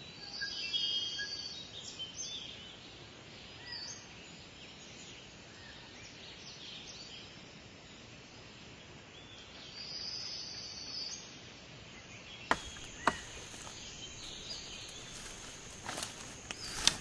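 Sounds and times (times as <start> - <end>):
birds calling: 12.5 - 17.0
sharp clicks: 12.5 - 17.0.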